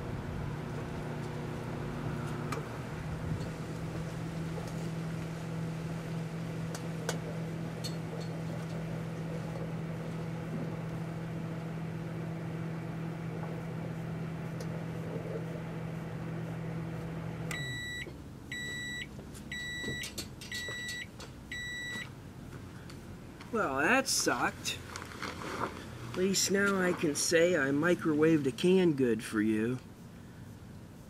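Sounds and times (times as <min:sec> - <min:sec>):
microwave oven humming: 0:00.0 - 0:22.9.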